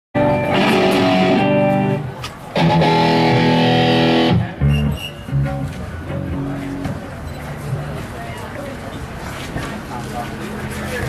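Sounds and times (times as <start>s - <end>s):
electric guitar chords: 0.2s - 6.9s
low guitar notes: 0.2s - 7.1s.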